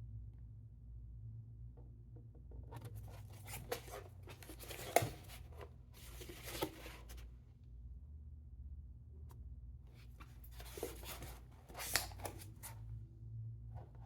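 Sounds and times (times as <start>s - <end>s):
cardboard scraping and rubbing: 2.8s - 7.2s, 10.2s - 12.8s.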